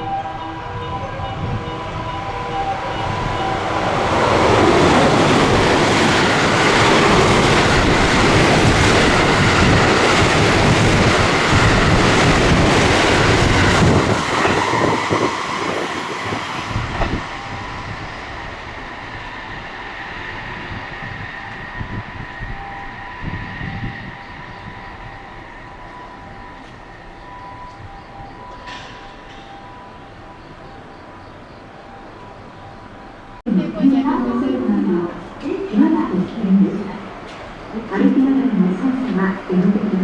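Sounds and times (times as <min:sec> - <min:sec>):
train passing at speed: 0:00.0 - 0:40.0
train wheel clatter: 0:02.6 - 0:19.0, 0:28.0 - 0:30.8.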